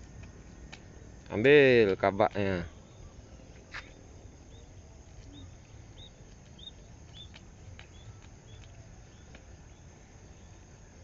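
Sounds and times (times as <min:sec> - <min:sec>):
small bird chirping: 0:02.7 - 0:10.6.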